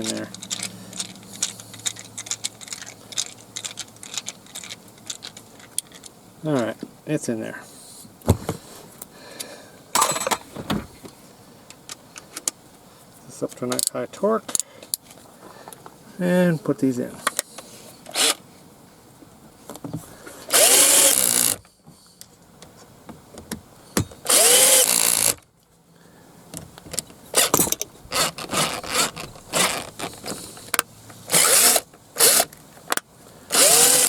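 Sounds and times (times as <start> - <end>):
clicks and taps of screws: 0.0 - 6.7
power drill driving screws: 18.1 - 18.4, 20.5 - 21.6, 24.2 - 25.4, 27.4 - 32.5, 33.5 - 34.0.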